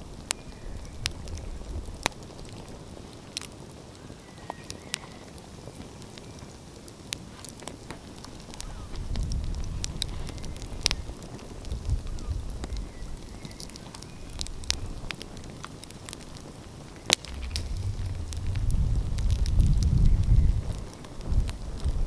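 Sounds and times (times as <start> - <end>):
wood fire crackling: 0.0 - 22.0
low rumble: 17.2 - 20.9.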